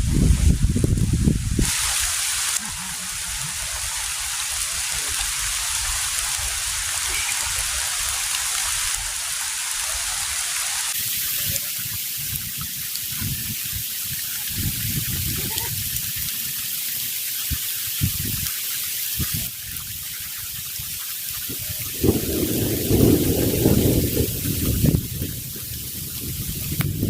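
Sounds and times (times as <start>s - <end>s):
wind buffeting microphone: 0.0s - 2.1s, 11.0s - 16.3s, 17.5s - 18.5s, 19.2s - 27.0s
heavy rain falling: 0.0s - 27.0s.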